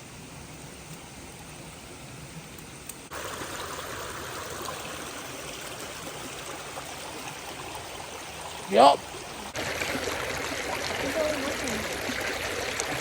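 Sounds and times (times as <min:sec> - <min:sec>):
stream water rushing: 0:03.1 - 0:13.0.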